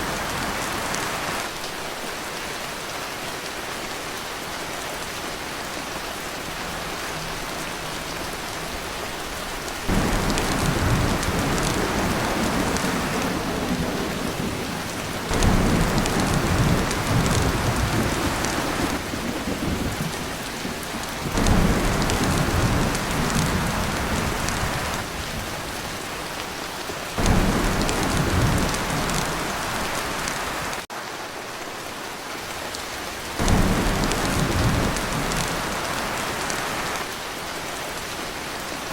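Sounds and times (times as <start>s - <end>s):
heavy rain on a tin roof: 0.0s - 38.9s
thunder rumbling: 9.8s - 25.7s, 27.2s - 30.8s, 33.4s - 37.0s.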